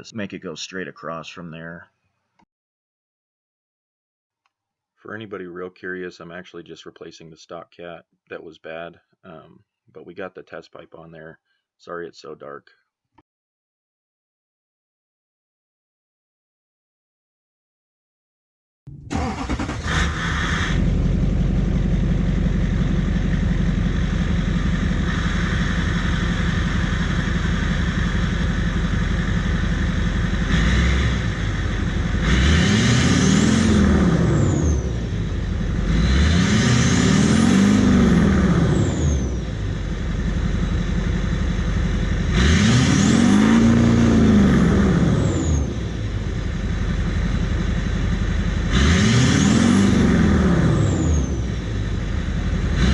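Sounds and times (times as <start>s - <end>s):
diesel engine idling and revving: 18.9s - 52.9s.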